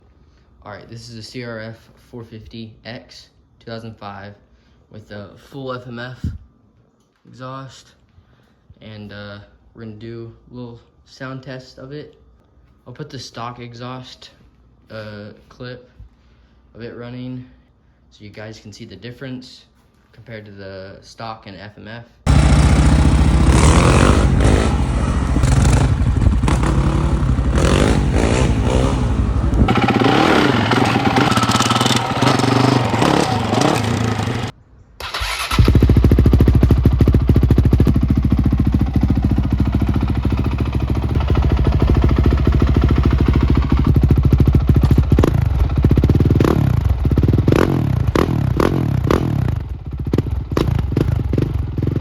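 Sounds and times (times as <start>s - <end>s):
motorcycle engine idling and revving: 22.3s - 34.5s, 35.2s - 52.0s.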